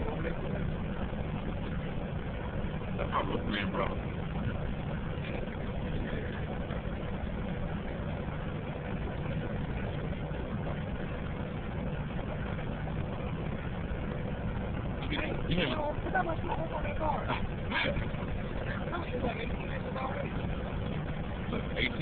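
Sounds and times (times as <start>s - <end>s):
car engine and cabin noise: 0.0s - 22.0s
faint steady hum: 0.0s - 22.0s.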